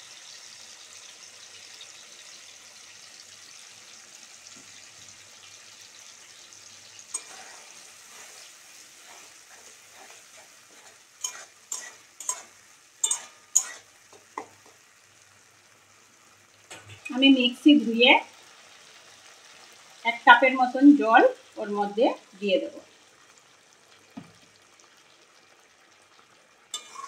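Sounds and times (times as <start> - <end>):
vegetables sizzling in oil: 0.0 - 27.0
spatula stirring and scraping: 7.1 - 14.8, 26.7 - 27.0.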